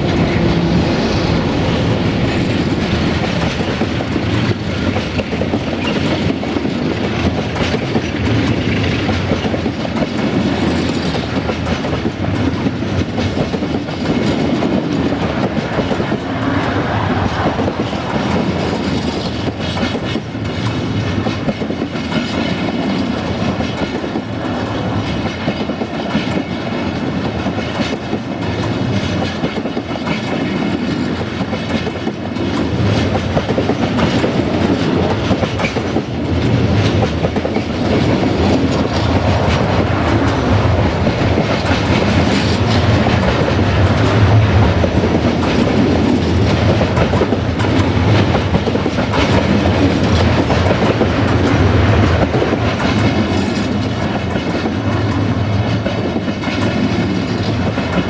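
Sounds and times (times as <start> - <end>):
freight train rumbling past: 0.0 - 58.0
wheels clicking over rail joints: 1.9 - 58.0.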